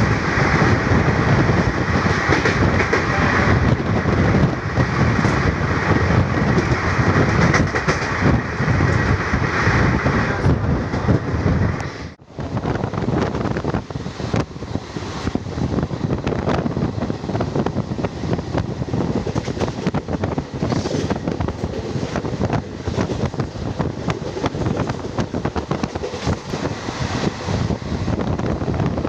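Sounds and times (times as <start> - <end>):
train running at speed: 0.0 - 29.0
wind buffeting microphone: 0.0 - 29.0
train wheels clicking and knocking: 1.5 - 9.2, 17.3 - 27.4.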